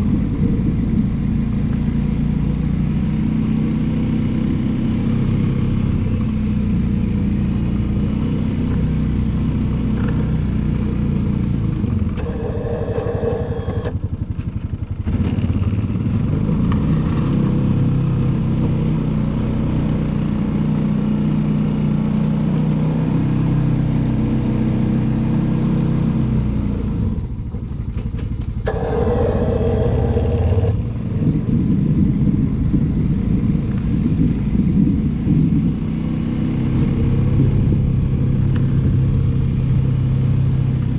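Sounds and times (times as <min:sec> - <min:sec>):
snow-clearing machine engine running: 0:11.6 - 0:16.8, 0:28.5 - 0:32.1.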